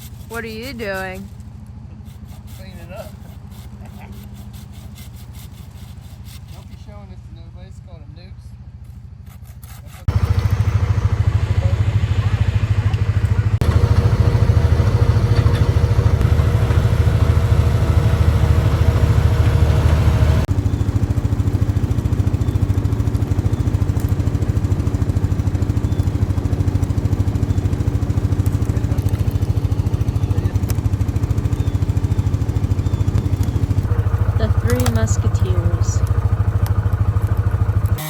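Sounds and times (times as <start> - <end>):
motor engine running: 10.1 - 38.0.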